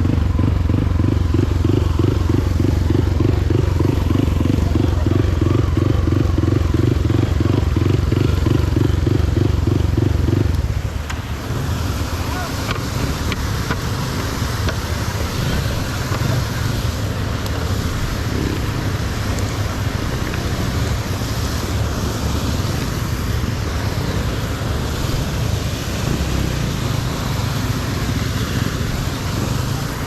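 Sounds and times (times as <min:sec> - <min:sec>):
motorcycle engine rumble: 0:00.0 - 0:30.0.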